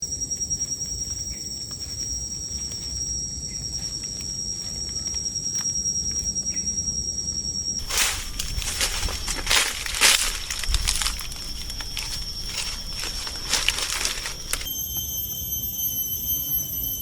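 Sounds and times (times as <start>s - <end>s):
high-pitched insect drone: 7.6s - 17.0s
rustling and crunching: 7.8s - 14.9s.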